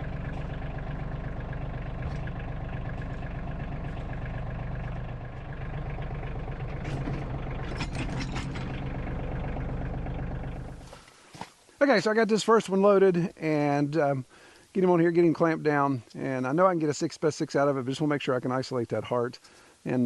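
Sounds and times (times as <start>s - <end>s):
tractor engine running: 0.0s - 11.1s
sharp clicks and knocks: 6.7s - 9.2s.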